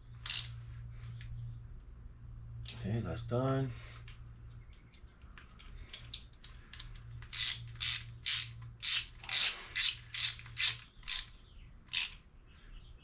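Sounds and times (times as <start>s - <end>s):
ratchet wrench clicking: 0.2s - 0.6s, 6.7s - 11.3s, 11.9s - 12.2s.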